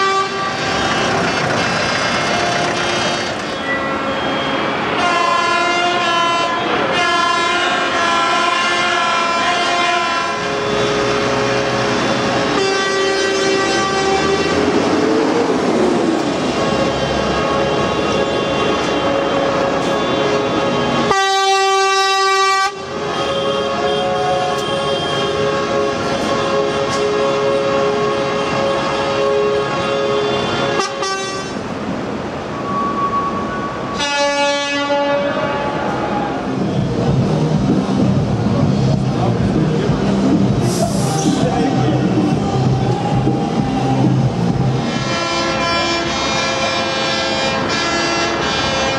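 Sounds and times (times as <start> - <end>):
tractor horns blasting: 0.0 - 1.2, 3.6 - 14.7, 17.4 - 31.7, 33.9 - 35.8, 44.9 - 48.9
engine noise: 0.0 - 5.6, 9.4 - 21.2, 35.2 - 48.9
low engine rumble: 36.4 - 45.0.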